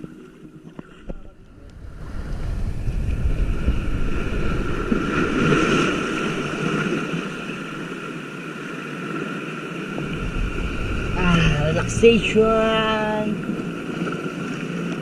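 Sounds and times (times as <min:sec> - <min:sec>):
wind noise on microphone: 0:01.0 - 0:07.9, 0:09.9 - 0:14.2
motorboat engine running: 0:02.8 - 0:15.0.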